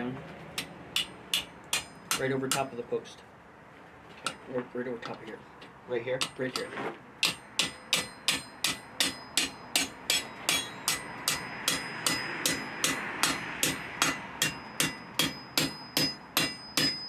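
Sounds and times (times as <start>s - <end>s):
hammer blows on hot steel: 6.2s - 17.0s.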